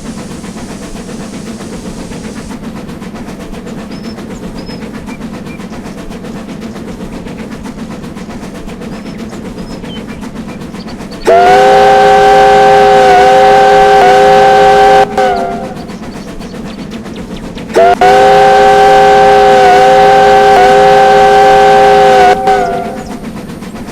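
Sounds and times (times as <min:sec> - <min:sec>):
train running: 0:00.0 - 0:23.9
loud chord locomotive whistle: 0:11.2 - 0:16.0, 0:17.8 - 0:23.3.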